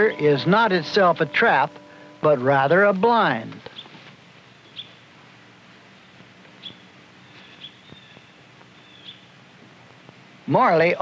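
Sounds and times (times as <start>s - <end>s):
low steady hum and hiss: 0.0s - 11.0s.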